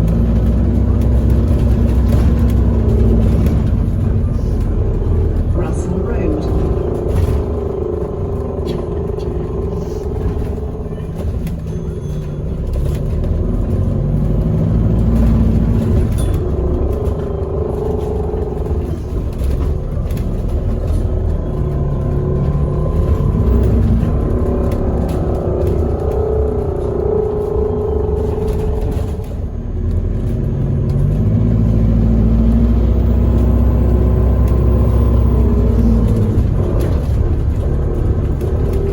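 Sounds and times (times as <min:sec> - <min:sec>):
bus engine rumble: 0:00.0 - 0:38.9
rising engine note: 0:12.7 - 0:38.9.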